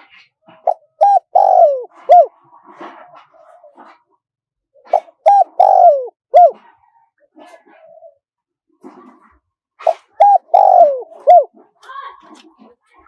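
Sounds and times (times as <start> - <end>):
dove cooing: 0.5 - 2.3, 4.9 - 6.7, 7.6 - 8.2, 9.8 - 11.5.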